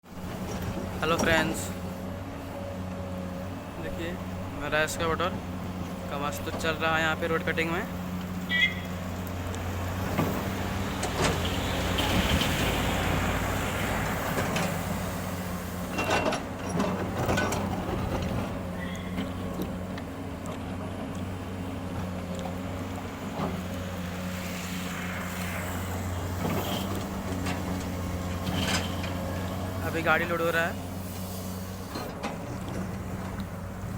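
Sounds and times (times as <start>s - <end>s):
excavator engine running: 0.1s - 33.9s
excavator bucket clanking: 15.8s - 19.9s, 26.4s - 29.7s.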